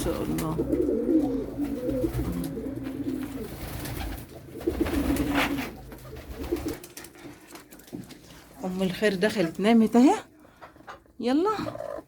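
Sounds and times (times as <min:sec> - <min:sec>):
pigeons cooing: 0:00.0 - 0:06.9.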